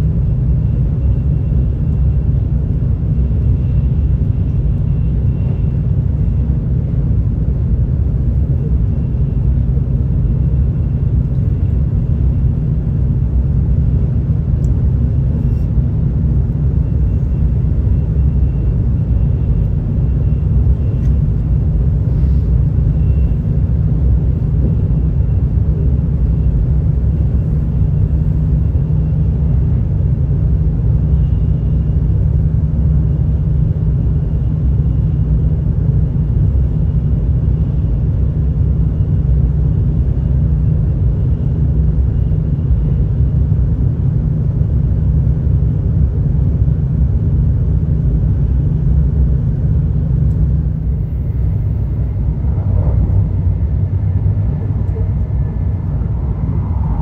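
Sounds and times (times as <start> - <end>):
deep train rumble: 0.0 - 57.0
faint high whine: 14.2 - 33.4, 50.2 - 57.0.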